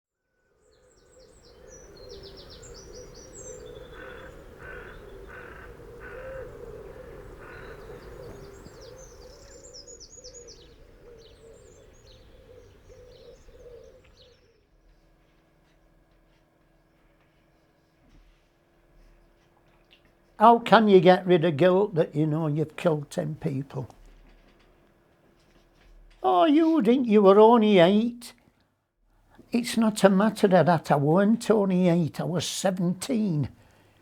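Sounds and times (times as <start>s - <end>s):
small birds chirping: 0.7s - 28.3s
crow cawing: 2.2s - 9.5s.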